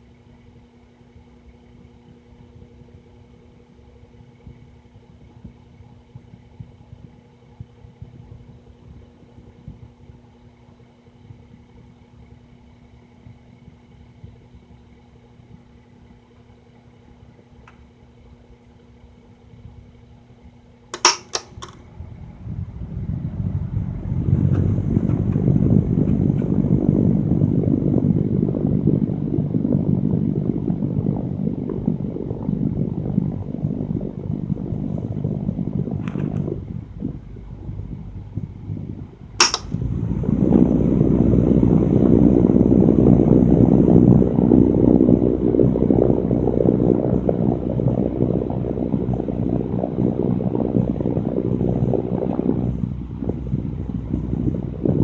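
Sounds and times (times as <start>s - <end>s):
fan motor hum: 0.0s - 55.0s
fan wind noise on microphone: 0.0s - 55.0s
sharp click: 21.0s - 21.8s, 39.4s - 39.7s.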